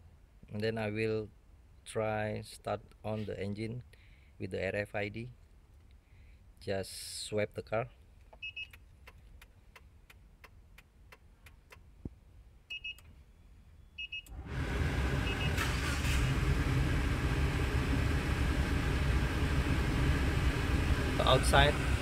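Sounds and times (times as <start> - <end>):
short double electronic beeps: 12.7 - 13.1, 13.8 - 14.3
car engine starting and idling: 14.2 - 22.0.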